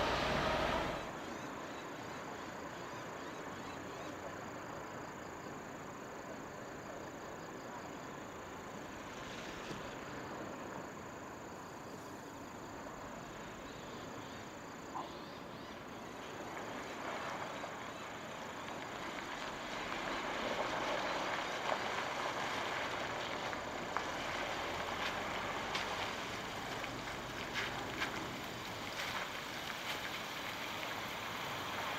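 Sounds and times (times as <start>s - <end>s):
road vehicle approaching: 0.0s - 1.4s, 16.1s - 31.9s.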